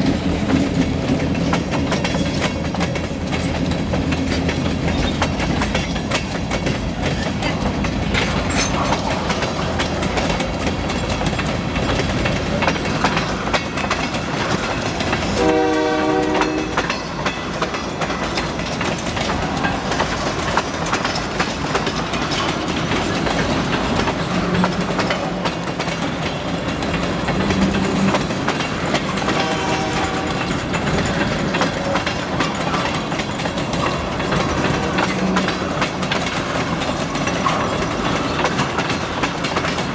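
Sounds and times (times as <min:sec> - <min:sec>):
train wheels clattering: 0:00.0 - 0:39.9
train horn: 0:15.4 - 0:17.0, 0:29.0 - 0:30.7, 0:35.0 - 0:35.6.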